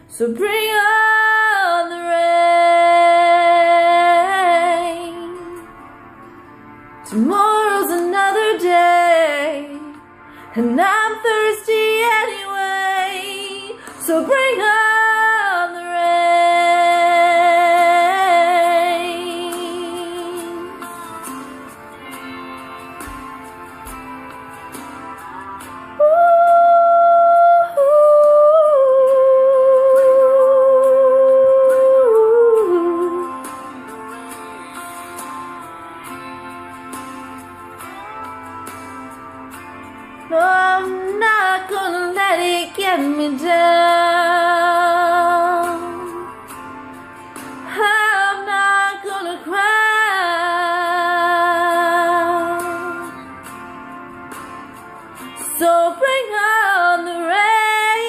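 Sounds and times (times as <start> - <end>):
woman singing: 0.0 - 5.8, 7.0 - 22.8, 25.0 - 34.8, 40.2 - 46.6, 47.6 - 53.4, 55.2 - 58.0
guitar accompaniment: 0.0 - 58.0
quiet instrumental backing: 0.0 - 58.0.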